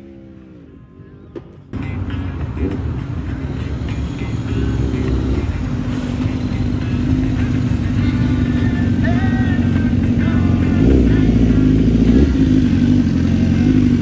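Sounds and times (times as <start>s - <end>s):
vehicle engines humming: 0.0s - 14.0s
short rising note: 3.0s - 9.5s.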